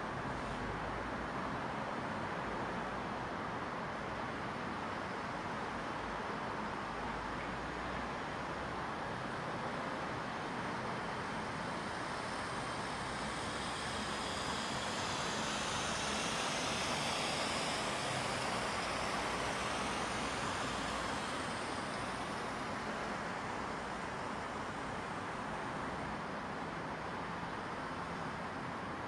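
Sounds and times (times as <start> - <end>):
car passing by: 11.8 - 25.4.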